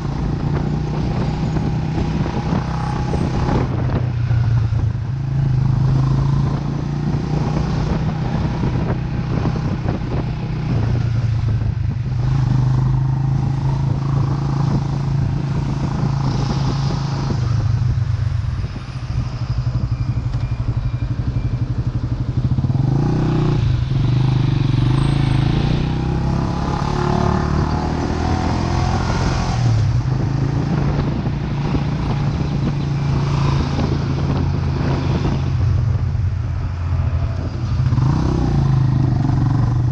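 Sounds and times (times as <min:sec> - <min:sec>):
motorcycle engine running: 0:00.0 - 0:27.4.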